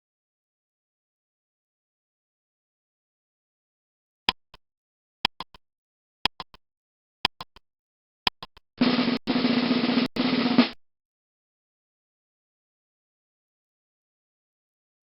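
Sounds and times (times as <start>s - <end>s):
sharp clicks: 4.3s - 4.6s, 5.2s - 5.6s, 6.2s - 6.6s, 7.2s - 7.6s, 8.3s - 9.3s
snare drum roll: 8.8s - 10.8s.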